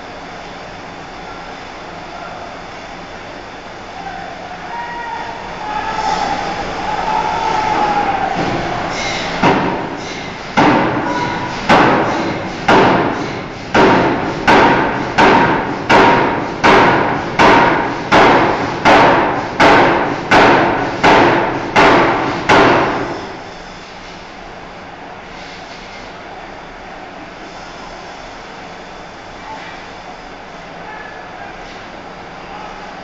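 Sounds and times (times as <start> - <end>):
steady machine noise: 0.0 - 24.7
hammer striking steel bar: 8.4 - 9.9, 10.6 - 13.2, 13.8 - 23.0.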